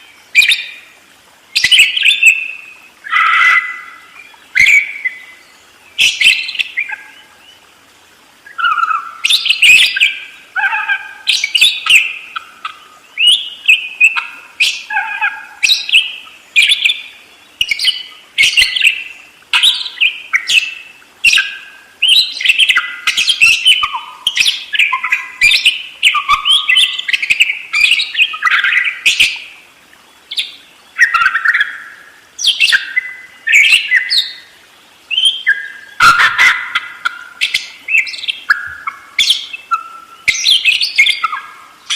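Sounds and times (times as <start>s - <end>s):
budgerigar chattering: 35.5s - 41.5s.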